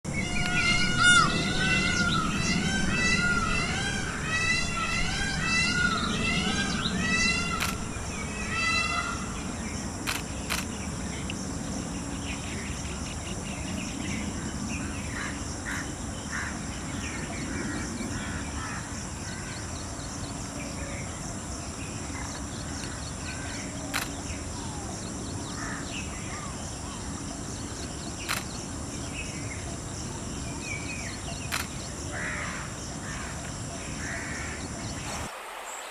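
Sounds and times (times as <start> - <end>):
birds calling: 0.1 - 10.9
sharp clicks: 7.5 - 8.2, 10.0 - 10.7, 23.9 - 24.2, 28.3 - 28.6, 31.5 - 31.8.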